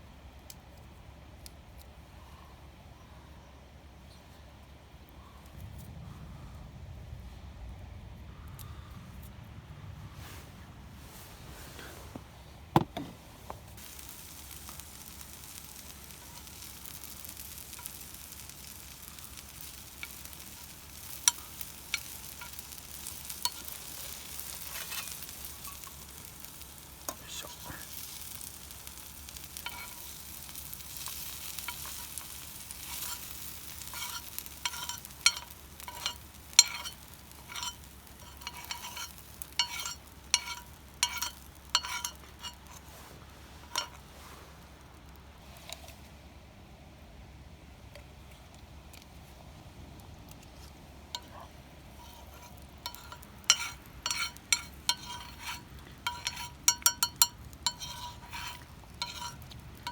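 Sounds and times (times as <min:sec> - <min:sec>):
food sizzling on a griddle: 0:13.7 - 0:45.8, 0:51.0 - 0:59.9
metal utensil clinking on plate: 0:33.9 - 0:42.6, 0:52.9 - 0:59.9.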